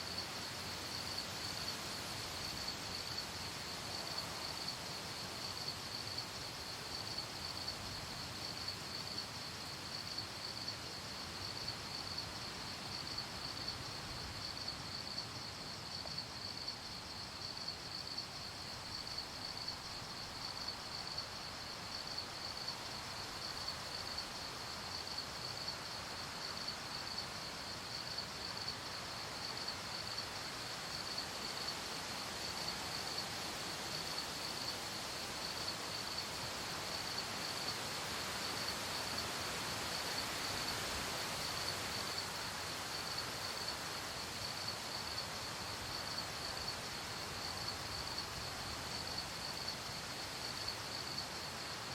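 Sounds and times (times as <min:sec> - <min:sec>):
crickets chirping: 0:00.0 - 0:51.9
night air hiss: 0:00.0 - 0:51.9.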